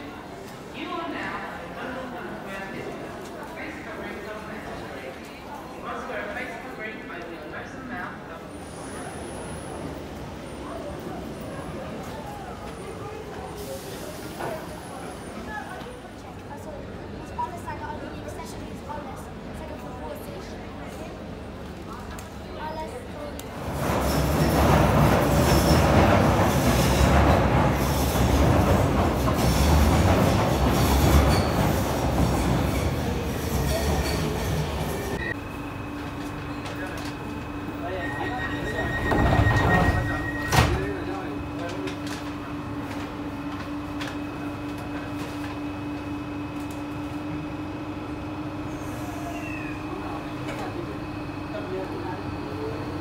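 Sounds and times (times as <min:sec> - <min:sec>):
train rail noise: 0:00.0 - 0:53.0
high wheel squeals: 0:37.7 - 0:41.0.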